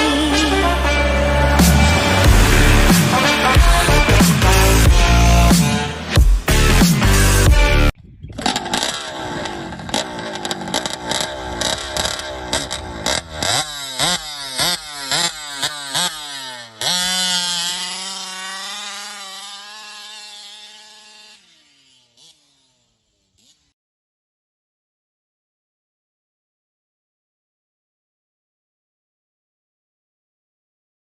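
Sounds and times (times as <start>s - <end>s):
vehicle engine revving: 0.0s - 23.7s
sharp cracks: 8.4s - 17.6s.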